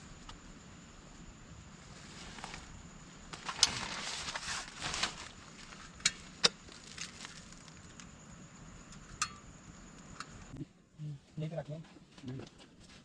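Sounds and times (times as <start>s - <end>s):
rustling handling noise: 3.3s - 6.0s.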